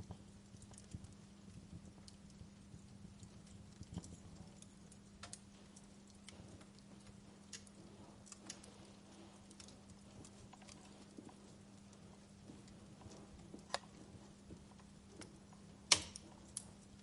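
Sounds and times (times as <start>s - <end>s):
steady low hum: 0.0s - 17.0s
wood fire crackling: 0.0s - 17.0s.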